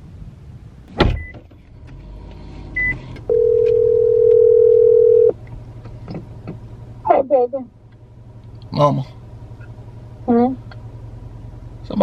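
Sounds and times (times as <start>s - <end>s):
low steady hum: 0.0s - 12.0s
thump: 0.9s - 1.6s
phone ringback tone: 3.3s - 5.3s.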